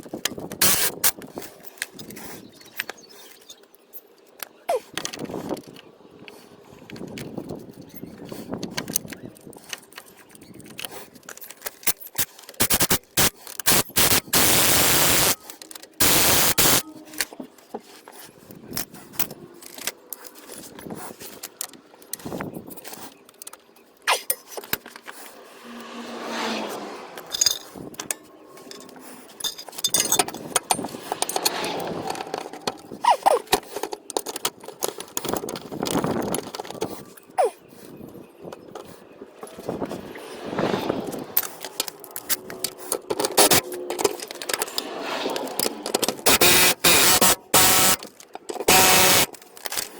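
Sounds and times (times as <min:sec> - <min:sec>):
sharp clicks: 0:11.9 - 0:16.8, 0:45.6 - 0:49.9
loud bursts of rushing noise: 0:16.0 - 0:16.8
metal tools clanking and scraping: 0:27.2 - 0:37.3.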